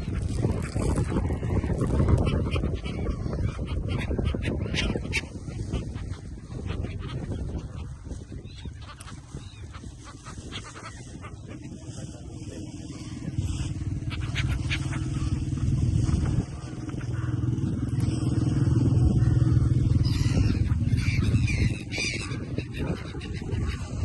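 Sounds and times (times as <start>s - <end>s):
engine running: 11.7s - 22.4s.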